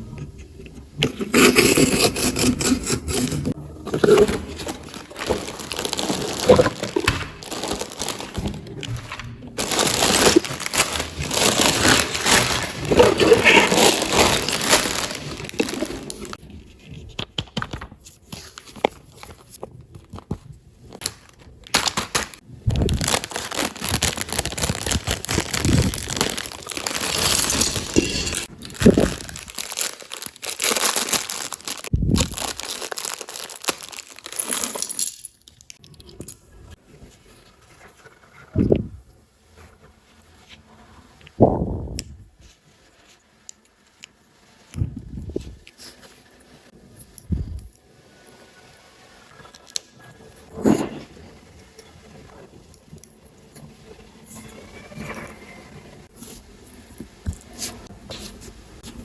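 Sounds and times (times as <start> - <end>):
plastic packaging crinkling and tearing: 1.0 - 16.4, 18.4 - 35.8.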